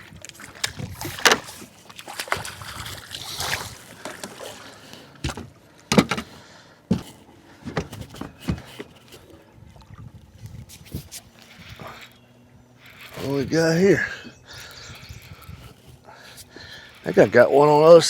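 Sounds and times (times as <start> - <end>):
water splashing: 0.0 - 5.2
knocks and thumps in a boat: 0.0 - 12.2.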